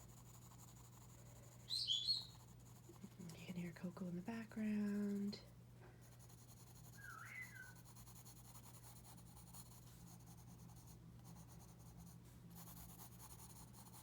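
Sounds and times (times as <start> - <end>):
pencil scratching on paper: 0.0 - 1.6, 2.3 - 5.5, 6.1 - 14.0
parrot whistled chirp: 1.7 - 2.3, 7.0 - 7.8.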